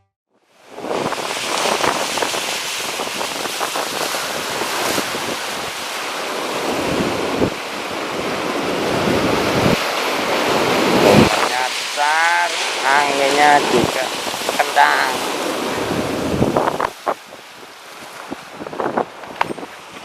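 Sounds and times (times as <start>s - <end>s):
sea surf: 0.4s - 20.0s
wind buffeting the microphone: 0.6s - 11.6s, 15.2s - 20.0s.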